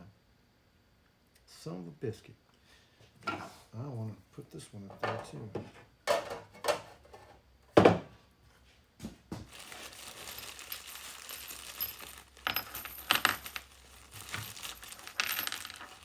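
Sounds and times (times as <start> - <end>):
metal hardware clinking: 9.8 - 16.0.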